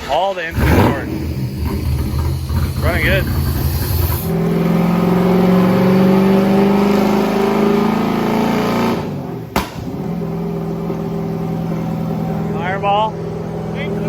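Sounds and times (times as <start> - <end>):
engine pop: 0.0 - 4.6, 9.5 - 10.0
engine at high revs: 0.5 - 14.0.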